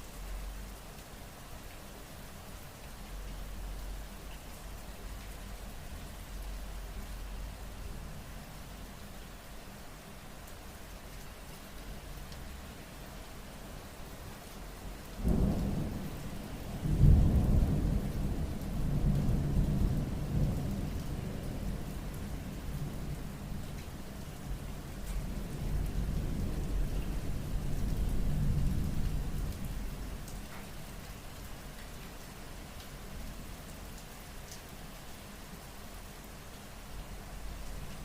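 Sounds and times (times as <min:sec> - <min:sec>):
steady rain: 0:00.0 - 0:38.0
thunder clap and rumble: 0:15.2 - 0:21.8.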